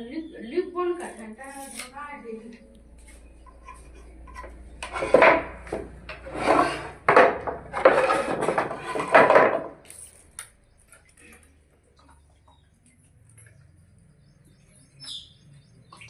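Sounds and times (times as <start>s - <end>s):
hand tool scraping wood: 3.6s - 9.8s.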